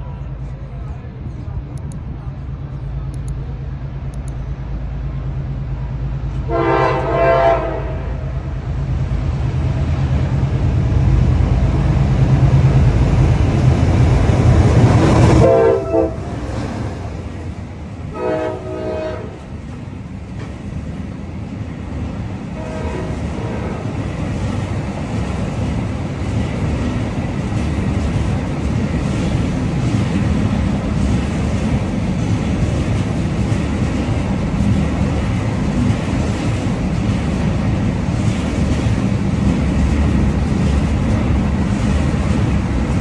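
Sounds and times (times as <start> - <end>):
train rumbling: 0.0 - 43.0
train horn blasts: 6.4 - 8.4, 15.3 - 16.4, 18.1 - 19.5, 22.6 - 23.9.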